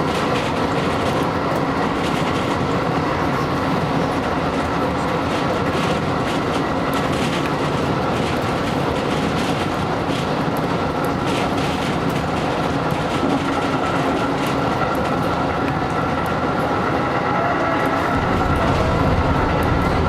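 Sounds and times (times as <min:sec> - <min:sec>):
train wheels rumbling on track: 0:00.0 - 0:20.0
electric train high whine: 0:09.8 - 0:20.0.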